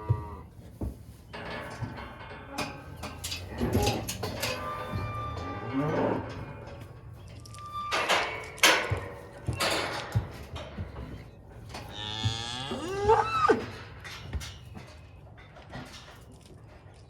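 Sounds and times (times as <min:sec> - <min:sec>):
cow mooing: 0:00.0 - 0:00.5, 0:11.8 - 0:13.7
cattle bawling: 0:11.9 - 0:13.8.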